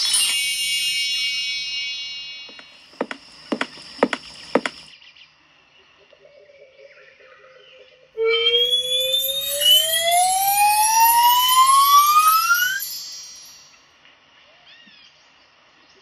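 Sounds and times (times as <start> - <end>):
bright ringing chime: 0.0 - 4.9, 8.2 - 13.8
sharp knocks: 2.5 - 4.9.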